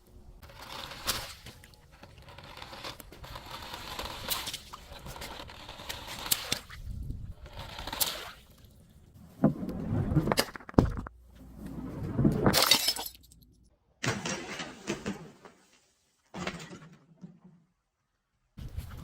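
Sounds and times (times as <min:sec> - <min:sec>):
glass bottles breaking: 0:12.5 - 0:13.4.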